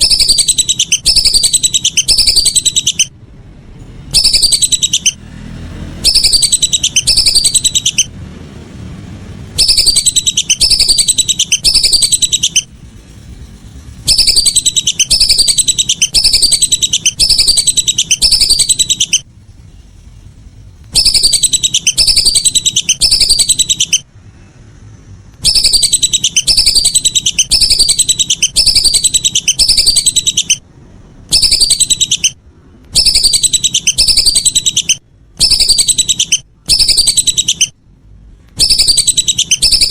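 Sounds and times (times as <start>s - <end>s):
whistling duck calls: 0.0s - 3.1s, 4.2s - 5.2s, 6.0s - 8.1s, 9.6s - 12.7s, 14.1s - 19.2s, 21.0s - 24.0s, 25.4s - 30.6s, 31.3s - 32.4s, 33.0s - 37.8s, 38.6s - 39.9s.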